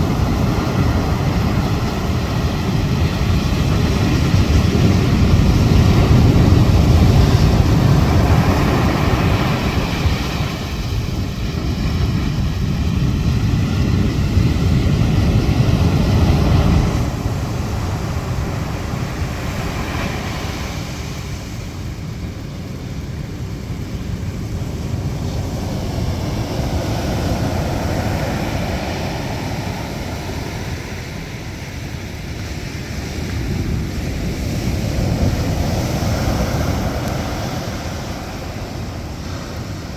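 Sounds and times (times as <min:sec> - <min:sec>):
wind rumbling on microphone: 0:00.0 - 0:39.9.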